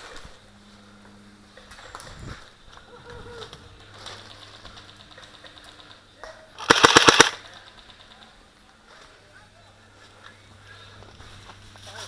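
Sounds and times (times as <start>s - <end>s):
airsoft rifle full-auto burst: 6.6s - 7.5s.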